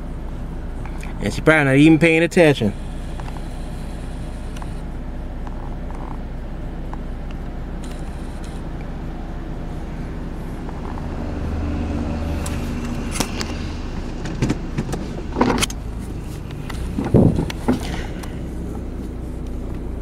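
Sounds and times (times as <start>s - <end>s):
car engine idling: 0.0s - 20.0s
sharp clicks and knocks: 12.4s - 19.9s.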